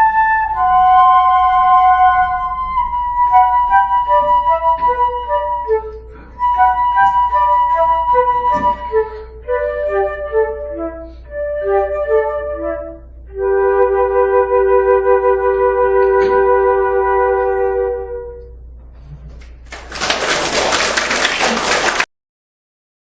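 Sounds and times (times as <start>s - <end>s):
two flutes playing a slow duet: 0.0s - 19.2s
flute player breathing: 4.5s - 11.7s.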